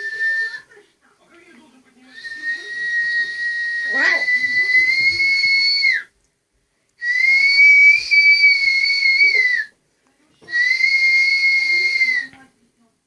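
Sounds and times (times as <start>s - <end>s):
high whistled notes: 0.0s - 0.7s, 2.2s - 6.1s, 7.0s - 9.7s, 10.5s - 12.4s.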